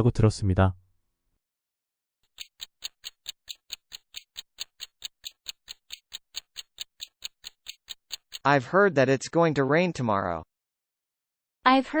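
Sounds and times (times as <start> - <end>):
clock ticking: 2.3 - 8.5.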